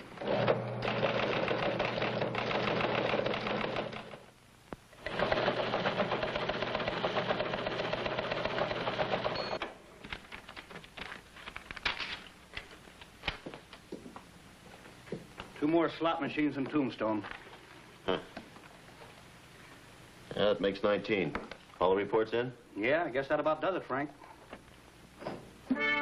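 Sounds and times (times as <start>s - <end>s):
teletype machine clattering: 0.3s - 4.2s, 5.0s - 9.4s.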